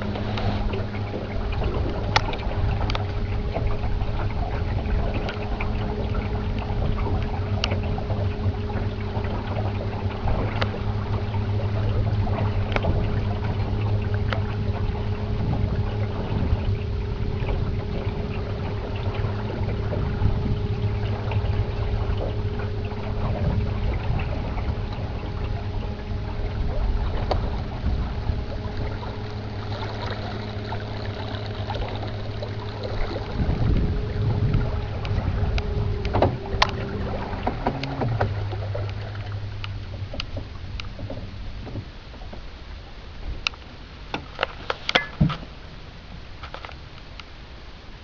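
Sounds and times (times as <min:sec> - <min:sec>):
boat hull knocking on waves: 0:00.0 - 0:45.8
outboard motor running: 0:00.0 - 0:48.0
water rushing past: 0:00.0 - 0:48.0.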